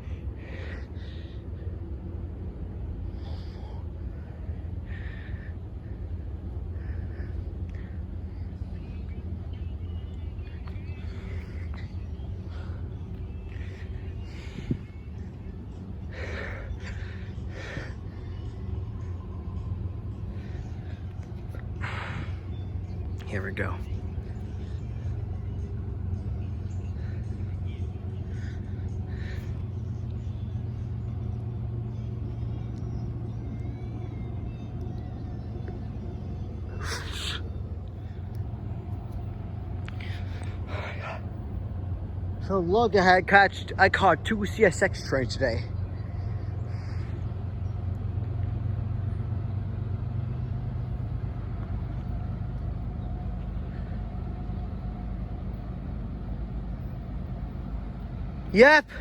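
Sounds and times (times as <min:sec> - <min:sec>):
faint steady hum: 0:00.0 - 0:59.0
freight train rumbling by: 0:00.0 - 0:59.0
faint high squeals: 0:32.7 - 0:39.2.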